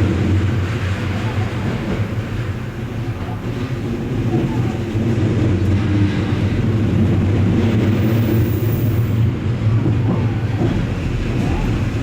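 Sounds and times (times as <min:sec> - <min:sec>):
train wheels rumbling on rails: 0:00.0 - 0:12.0
faint gliding whine: 0:00.8 - 0:09.2.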